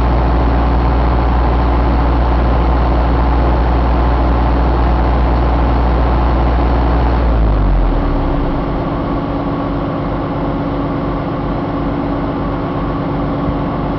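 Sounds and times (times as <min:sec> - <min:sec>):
diesel engine idling: 0:05.4 - 0:12.8.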